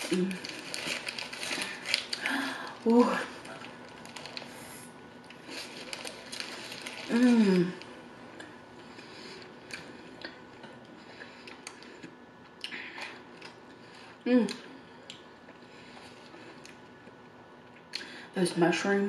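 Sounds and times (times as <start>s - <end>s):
chewing burger: 0.0s - 2.3s, 5.2s - 18.0s
paper wrapper rustling: 0.0s - 7.9s.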